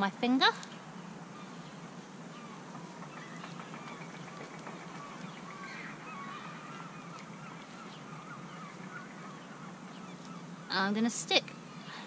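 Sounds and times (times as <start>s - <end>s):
steady low hum: 0.0s - 12.0s
bird calls: 0.3s - 12.0s.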